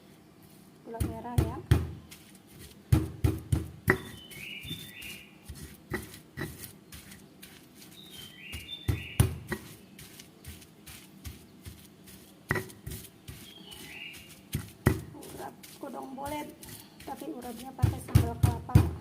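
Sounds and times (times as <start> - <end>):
kitchen work knocks and taps: 1.0 - 2.0, 2.9 - 4.2, 8.9 - 9.7, 12.5 - 13.0, 14.5 - 15.2, 17.8 - 19.0
songbird singing short phrase: 4.0 - 5.4, 7.9 - 10.1, 13.3 - 14.4.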